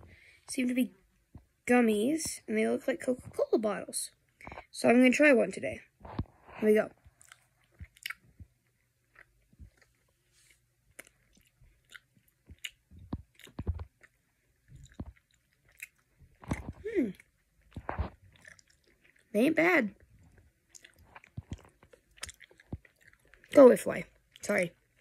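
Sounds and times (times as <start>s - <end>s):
wet chewing mouth sounds: 7.0s - 19.3s, 19.9s - 25.0s
person humming: 16.8s - 17.2s.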